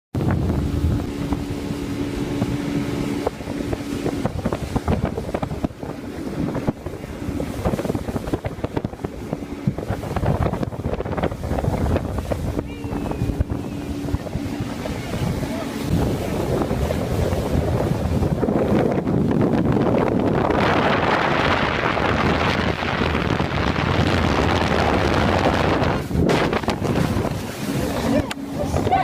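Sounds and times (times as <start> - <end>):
wind noise on microphone: 0.1 - 29.0
motorboat engine: 0.2 - 29.0
water splashing and knocking: 24.4 - 29.0.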